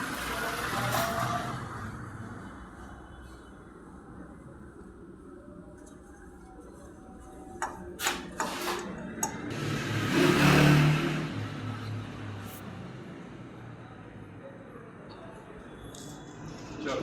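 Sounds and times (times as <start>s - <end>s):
vehicle engine passing by: 9.3s - 14.4s.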